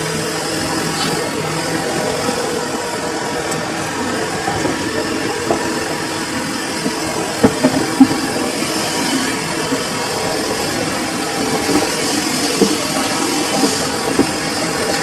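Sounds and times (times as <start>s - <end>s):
washing machine hum and rumble: 0.0s - 15.0s
sharp knocks: 6.8s - 8.4s.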